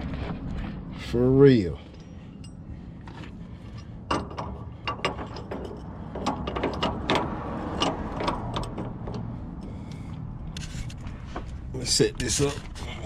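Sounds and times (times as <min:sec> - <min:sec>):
hand ratchet clicking: 0:04.1 - 0:09.7.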